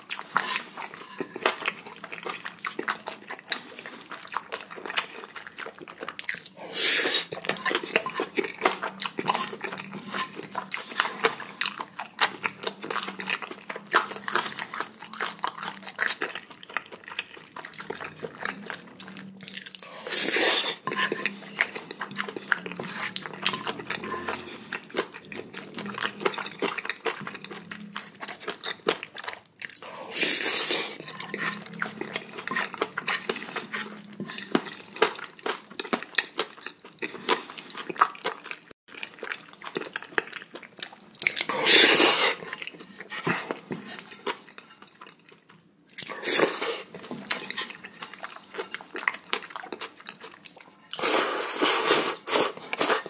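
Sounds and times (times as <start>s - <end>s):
person chewing: 0.0s - 53.0s
spoon scraping ceramic plate: 0.3s - 1.6s, 9.3s - 11.1s, 20.2s - 21.7s, 22.8s - 24.7s, 31.0s - 34.6s.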